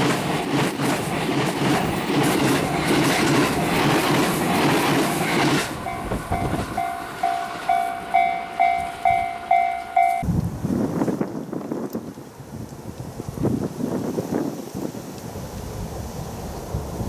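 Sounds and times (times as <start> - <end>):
train rumbling past: 0.0 - 10.3
level crossing warning bell: 5.0 - 10.2.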